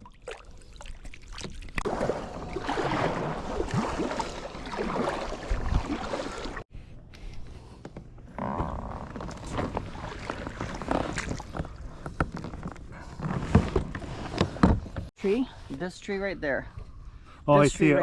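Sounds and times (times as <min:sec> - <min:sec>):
water splashing around kayak: 0:00.0 - 0:06.7, 0:09.1 - 0:14.6.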